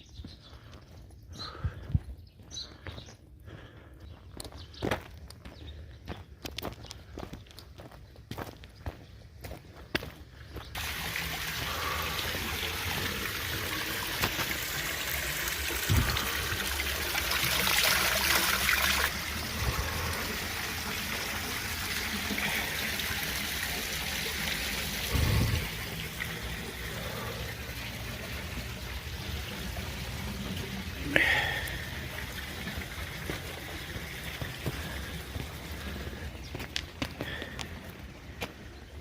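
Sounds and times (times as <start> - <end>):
water trickling: 10.7 - 36.3.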